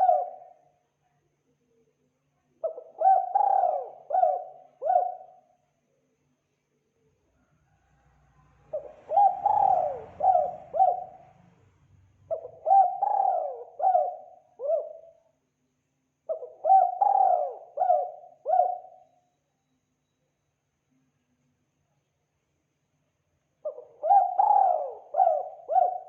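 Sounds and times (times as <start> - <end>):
dove cooing: 0.0 - 0.6, 2.6 - 5.4, 8.7 - 11.4, 12.3 - 15.2, 16.3 - 19.1, 23.6 - 26.0.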